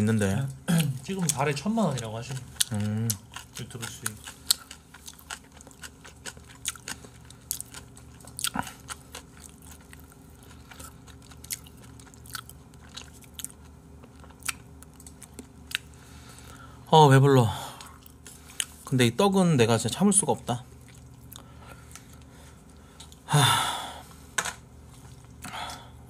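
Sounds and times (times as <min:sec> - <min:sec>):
person chewing food: 0:00.8 - 0:16.8, 0:17.7 - 0:18.9, 0:20.7 - 0:23.3, 0:24.8 - 0:26.0.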